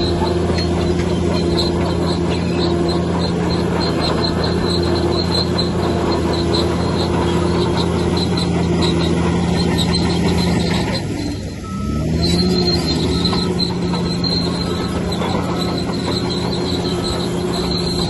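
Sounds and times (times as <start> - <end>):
bulldozer diesel engine running: 0.0 - 18.0
rapid high-pitched squeak: 0.0 - 18.0.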